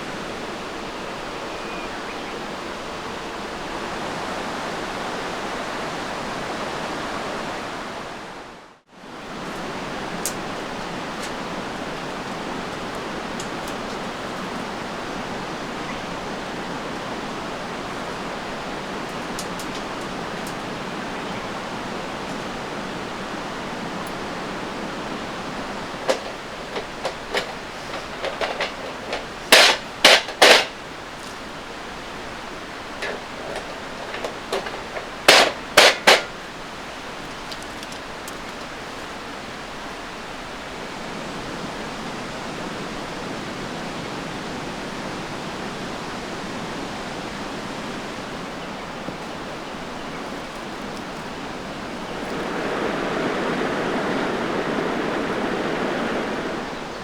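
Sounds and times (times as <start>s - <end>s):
steady rushing noise: 23.6s - 31.7s, 32.4s - 36.5s, 51.7s - 57.0s.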